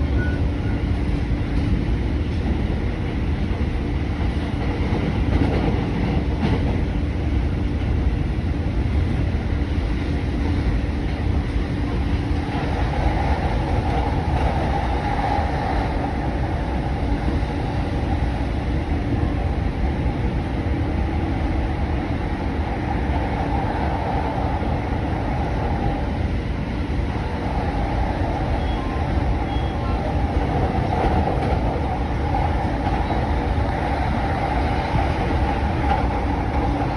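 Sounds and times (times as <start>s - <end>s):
train wheels rumbling on track: 0.0s - 36.9s.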